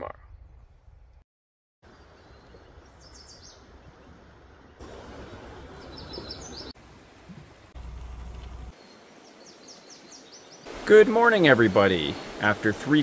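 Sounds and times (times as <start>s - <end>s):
outdoor background noise: 1.8s - 13.0s
small birds chirping: 1.9s - 4.9s, 5.6s - 10.8s.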